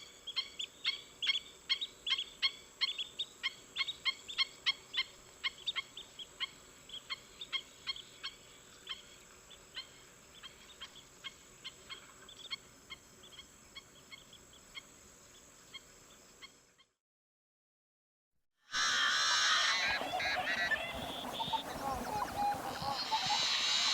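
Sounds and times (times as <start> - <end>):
birds honking: 18.8 - 23.9.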